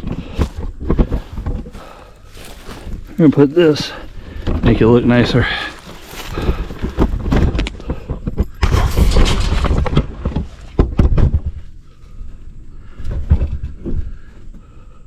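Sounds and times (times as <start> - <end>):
rustling handling noise: 0.0 - 10.8
thumps and knocks: 6.4 - 11.7.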